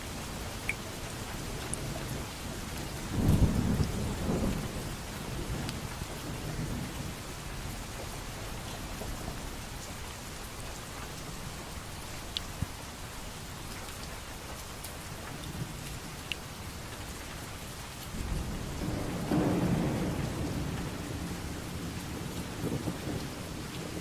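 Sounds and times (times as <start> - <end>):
steady rain: 0.0 - 24.0
low thunder rumble: 3.0 - 7.8, 18.2 - 24.0.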